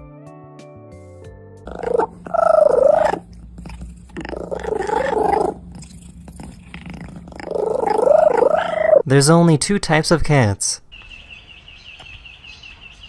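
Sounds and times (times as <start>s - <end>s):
pet calling with wavering pitch: 1.7s - 5.7s, 7.4s - 9.0s.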